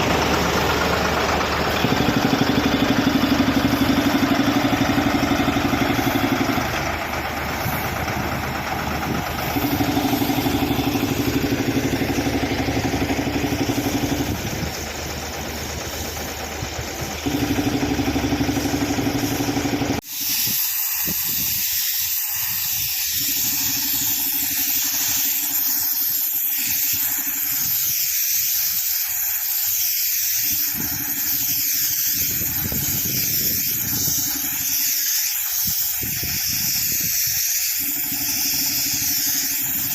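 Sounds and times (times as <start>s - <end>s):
air compressor engine running: 0.0s - 39.9s
compressed air hissing from nozzle: 0.0s - 39.9s.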